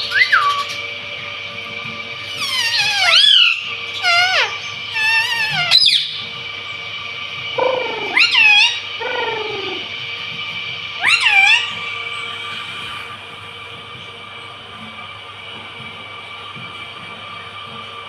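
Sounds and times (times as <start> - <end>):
parrot squawking: 0.0 - 0.9, 2.2 - 6.2, 7.6 - 9.9, 11.0 - 13.1.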